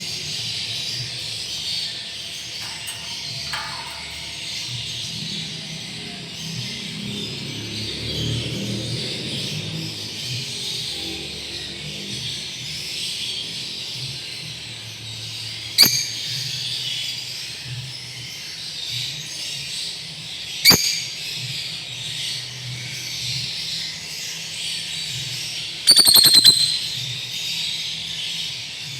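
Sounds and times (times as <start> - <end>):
lovebird calling: 25.9 - 27.1.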